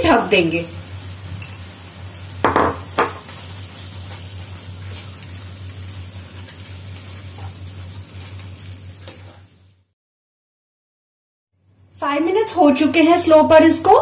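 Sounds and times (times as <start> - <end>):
food sizzling in a pan: 0.0 - 10.0
wooden spatula scraping pan: 9.0 - 9.5.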